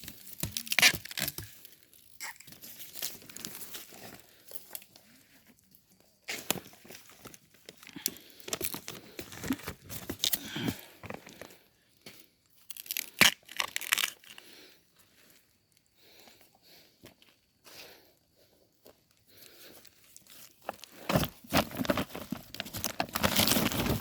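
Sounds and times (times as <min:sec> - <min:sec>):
dry plant material crackling: 0:00.0 - 0:04.8, 0:20.2 - 0:24.0.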